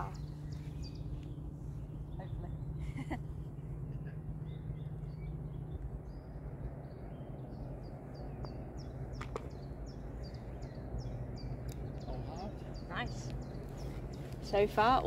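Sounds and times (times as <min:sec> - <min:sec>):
low background rumble: 0:00.0 - 0:15.0
small birds chirping: 0:00.0 - 0:15.0.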